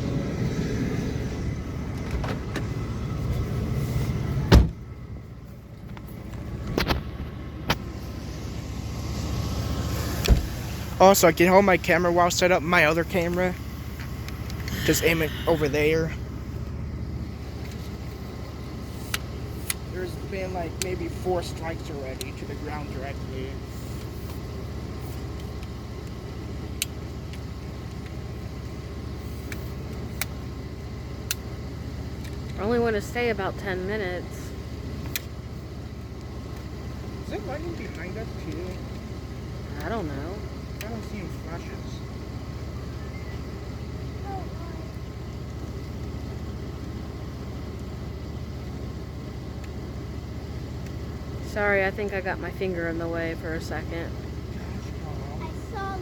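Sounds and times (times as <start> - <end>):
car engine rumbling: 0.0 - 56.0
car door slam: 4.5 - 4.8, 10.2 - 10.7.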